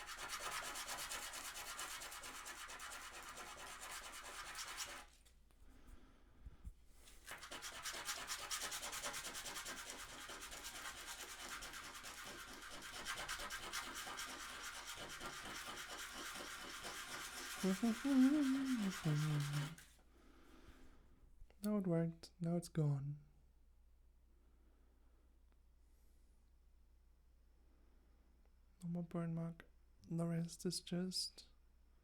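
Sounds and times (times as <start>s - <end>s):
sanding wood by hand: 0.0s - 5.1s, 7.2s - 19.9s.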